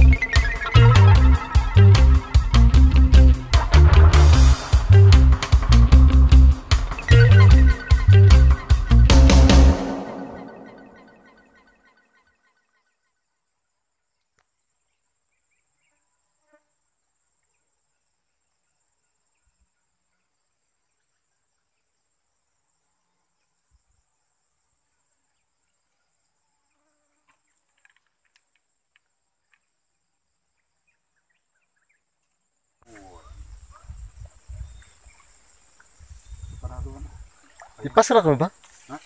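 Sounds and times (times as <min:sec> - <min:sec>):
insect chorus buzzing trill: 0:00.0 - 0:11.6, 0:14.5 - 0:39.0
faint chirps and ticks: 0:12.4 - 0:39.0.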